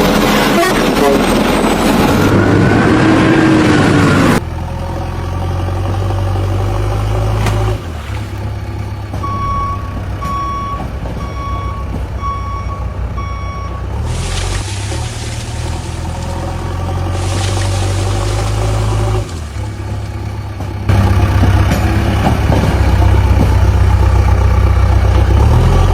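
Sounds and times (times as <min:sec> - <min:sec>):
loud rushing noise: 0:00.0 - 0:04.4
heavy vehicle engine humming: 0:00.0 - 0:25.9
reversing alarm beeping: 0:09.2 - 0:14.0.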